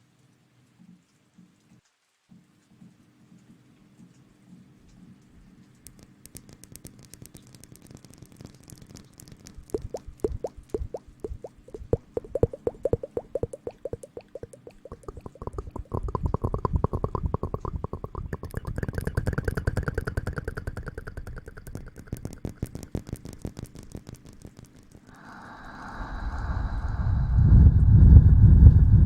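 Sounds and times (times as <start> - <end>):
steady hiss: 5.0 - 27.9
rhythmic rubbing and scrubbing: 5.9 - 25.1
low rumble: 25.4 - 29.0.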